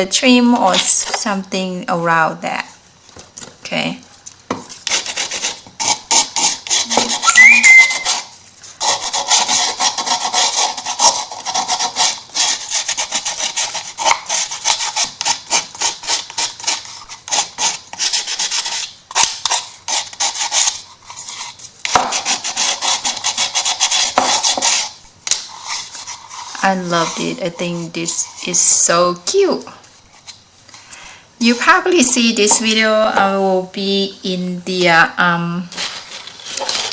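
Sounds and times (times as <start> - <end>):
sanding file rasping on wood: 4.9 - 7.2, 8.0 - 24.9.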